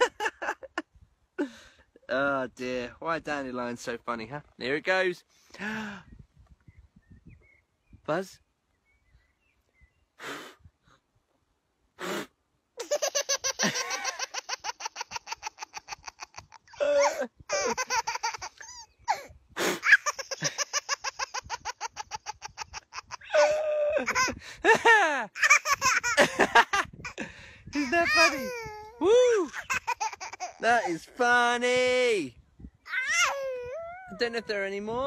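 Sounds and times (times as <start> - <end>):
man laughing: 0.0 - 1.6, 12.8 - 31.2
puffs of breath: 1.4 - 2.0, 5.3 - 6.3, 10.2 - 11.1, 12.0 - 12.4, 27.2 - 27.8
toddler belly laughing: 12.8 - 31.1, 32.9 - 34.2.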